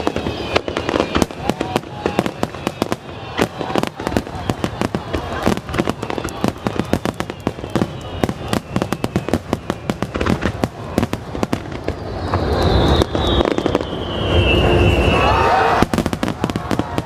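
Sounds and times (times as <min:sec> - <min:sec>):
falling whistle: 0:00.0 - 0:04.9, 0:05.8 - 0:10.2, 0:11.7 - 0:16.1
fireworks crackling and banging: 0:00.0 - 0:17.0.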